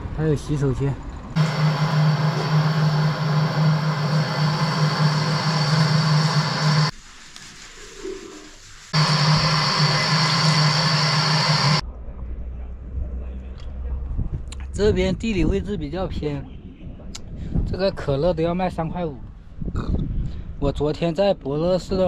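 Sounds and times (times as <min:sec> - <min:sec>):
machine hum with rushing air: 0:01.4 - 0:06.9, 0:08.9 - 0:11.8.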